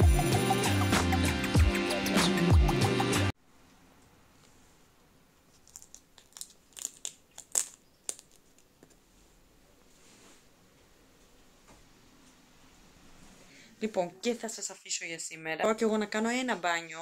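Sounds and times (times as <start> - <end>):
crinkling handling noise: 5.4 - 10.4.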